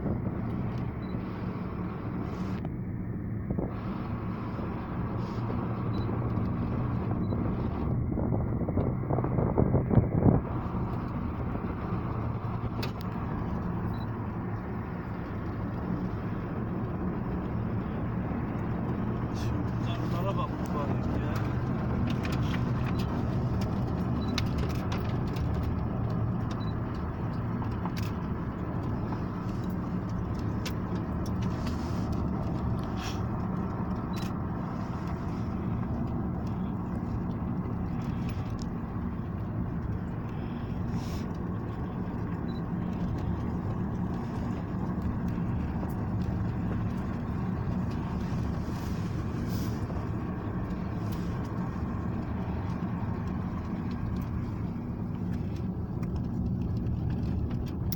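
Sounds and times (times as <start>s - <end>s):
car engine and road rumble: 0.0s - 57.9s
light clicks and rattles: 12.1s - 57.9s.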